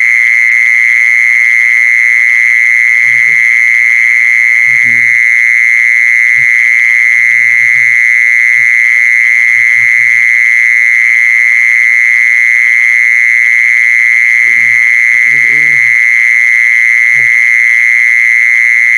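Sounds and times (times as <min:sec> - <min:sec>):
shrill insect buzzing: 0:02.9 - 0:10.6, 0:13.7 - 0:17.8.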